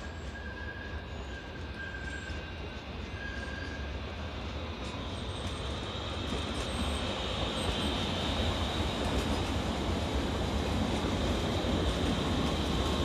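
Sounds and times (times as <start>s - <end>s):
faint high wheel squeal: 0.0s - 8.4s
train wheels rumbling on rail: 0.0s - 13.0s.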